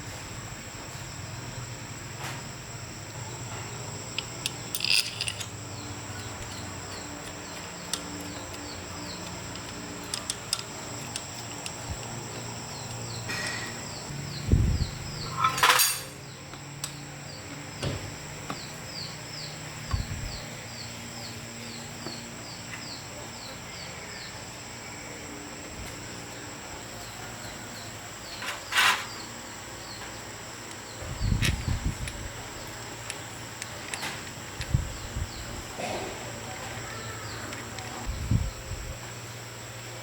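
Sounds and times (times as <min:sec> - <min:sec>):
insect chirping: 0:00.0 - 0:40.0
clicks and knocks of handling: 0:04.1 - 0:05.6, 0:07.2 - 0:12.2.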